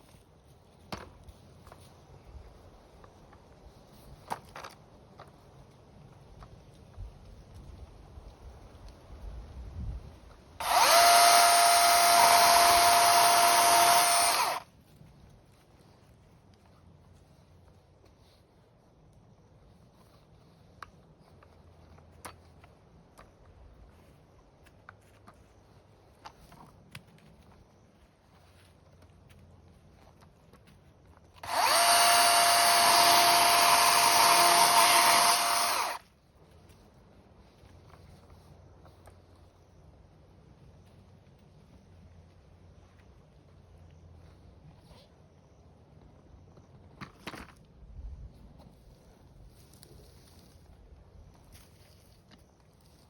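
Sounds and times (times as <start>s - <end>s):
power tool motor whining: 10.6s - 14.6s, 31.4s - 36.0s.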